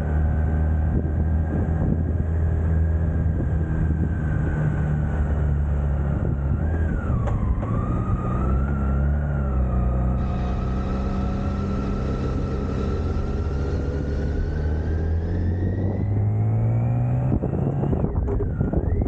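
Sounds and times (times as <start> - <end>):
motorcycle engine running: 10.2 - 16.2.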